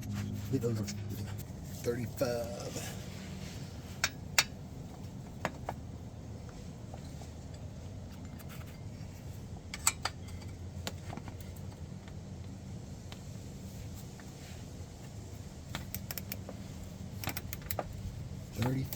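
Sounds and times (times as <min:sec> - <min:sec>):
steady low hum: 0:00.0 - 0:18.9
metallic clicks of hand tools: 0:15.7 - 0:16.4, 0:17.2 - 0:17.9.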